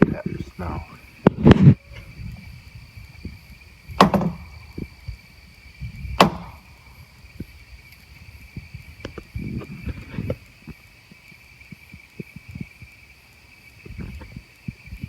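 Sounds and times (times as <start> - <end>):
loud wood knocks: 4.0 - 4.9, 6.2 - 6.7.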